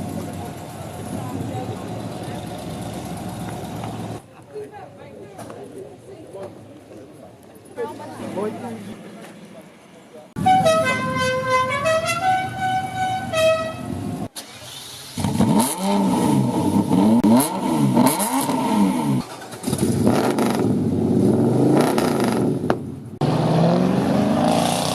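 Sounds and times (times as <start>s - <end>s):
musical car horn tune: 10.4s - 14.1s
car engine revving: 14.4s - 24.9s.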